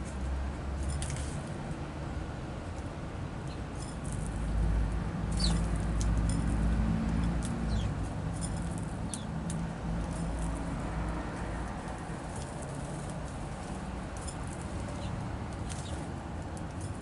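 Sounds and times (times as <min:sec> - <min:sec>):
small birds chirping: 0:03.4 - 0:03.7, 0:05.3 - 0:05.7, 0:07.4 - 0:08.1, 0:09.0 - 0:09.4, 0:14.8 - 0:16.1.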